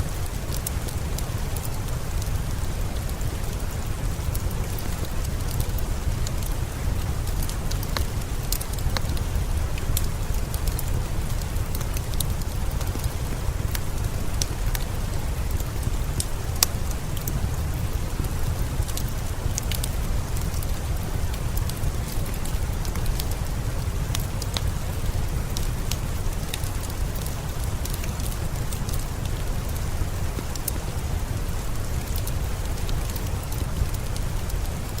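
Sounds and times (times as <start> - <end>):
steady rain: 0.0 - 35.0
wood fire crackling: 0.0 - 35.0.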